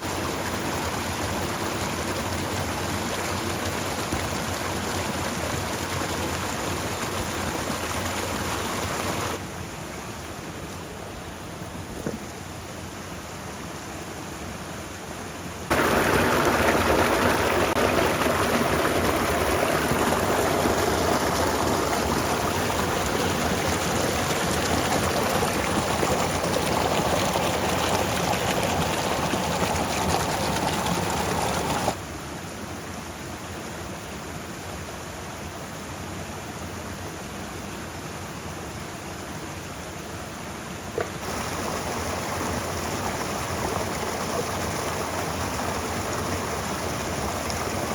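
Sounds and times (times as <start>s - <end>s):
stormy outdoor rushing noise: 15.7s - 32.0s.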